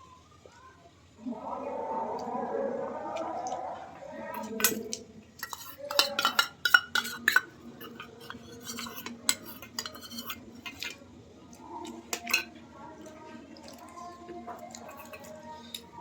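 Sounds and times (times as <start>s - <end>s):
spoon clinking against dishes: 4.4s - 11.0s, 12.1s - 13.9s, 14.5s - 16.0s.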